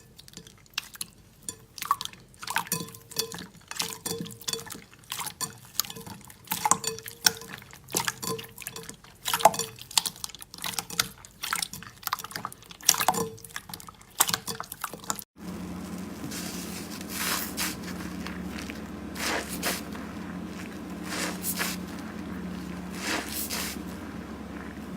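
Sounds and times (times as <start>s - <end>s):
steady hiss: 15.4s - 24.6s
low hum: 15.4s - 24.9s
soft crackles: 15.4s - 24.9s.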